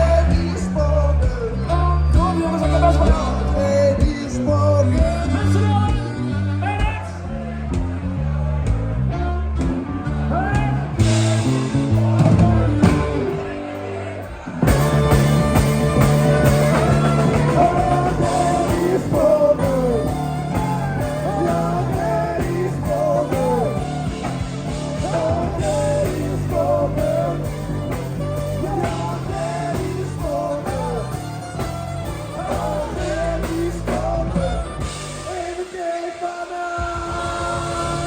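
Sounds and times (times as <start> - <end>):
bass line: 0.0 - 35.7
person singing: 10.4 - 38.0
drum beat: 14.4 - 35.9.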